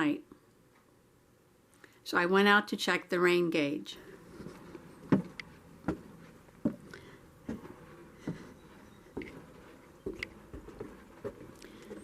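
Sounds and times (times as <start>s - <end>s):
footsteps walking: 4.2s - 12.0s.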